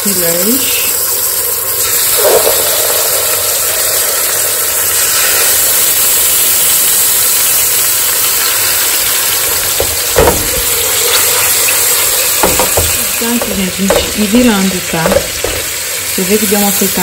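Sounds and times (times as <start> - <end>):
fish sizzling in a pan: 0.0 - 17.0
knock against a pan: 9.6 - 11.2, 12.4 - 15.8.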